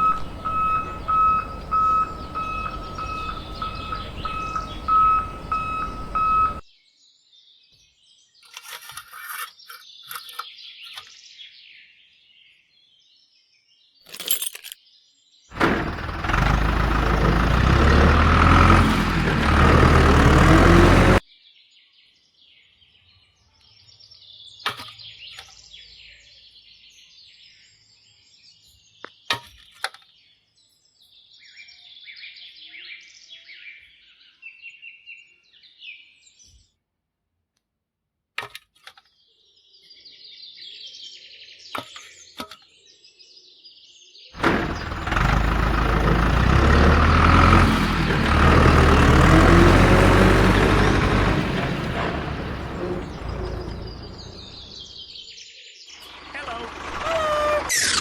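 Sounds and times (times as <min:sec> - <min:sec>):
loud rumbling noise: 0:00.0 - 0:06.6, 0:15.6 - 0:21.2, 0:44.4 - 0:54.7
small birds chirping: 0:00.0 - 0:06.6, 0:14.8 - 0:36.7, 0:39.0 - 0:58.0.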